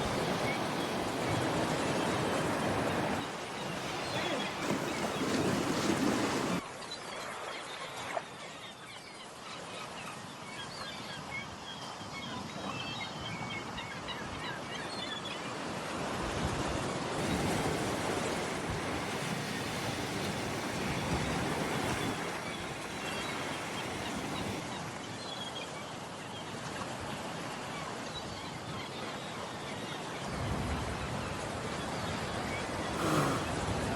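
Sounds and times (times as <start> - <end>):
waves washing onto shore: 0.0 - 6.7, 15.4 - 25.1, 29.3 - 33.9
wind: 0.0 - 33.9.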